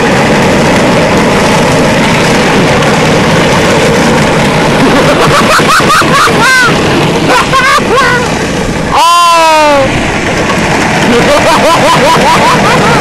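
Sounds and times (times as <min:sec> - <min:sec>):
truck driving through snow: 0:00.0 - 0:13.0
person shouting: 0:08.9 - 0:10.0.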